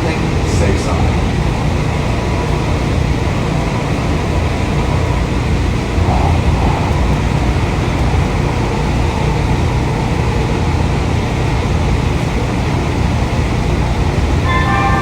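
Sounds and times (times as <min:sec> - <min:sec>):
air-conditioning blowing: 0:00.0 - 0:15.0
train running rumble: 0:00.0 - 0:15.0.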